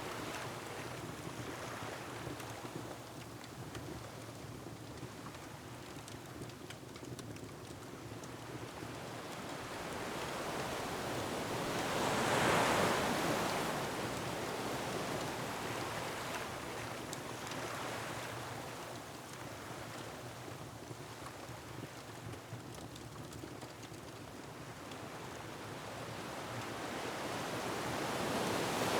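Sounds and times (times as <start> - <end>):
faint wood fire crackles: 0.0 - 28.9
ocean waves on rocky shore: 9.5 - 16.8.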